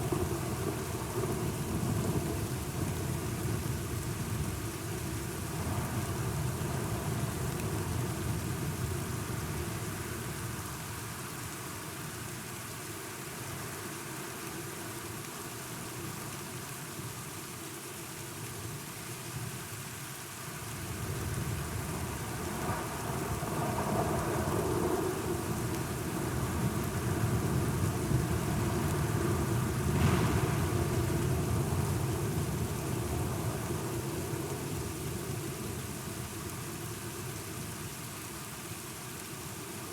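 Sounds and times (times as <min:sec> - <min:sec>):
steady rain: 0:00.0 - 0:39.9
thunder rumbling: 0:21.5 - 0:35.7
sharp thunder crack: 0:29.8 - 0:33.2.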